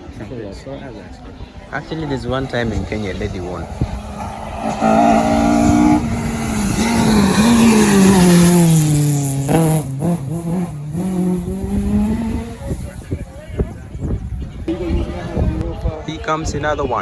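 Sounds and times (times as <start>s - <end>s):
rally car engine passing by: 1.6s - 13.4s.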